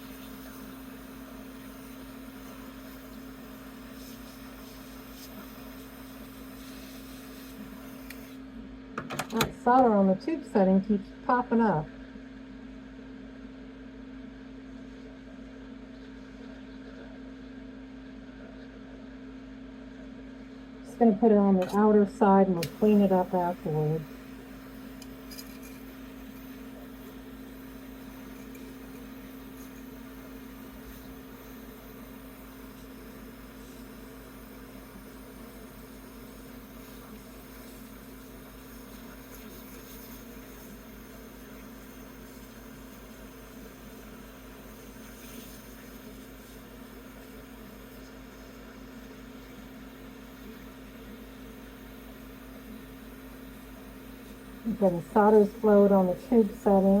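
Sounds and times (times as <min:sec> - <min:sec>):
torch flame hissing: 0:00.0 - 0:08.5, 0:21.8 - 0:57.0
constant low hum: 0:00.0 - 0:57.0.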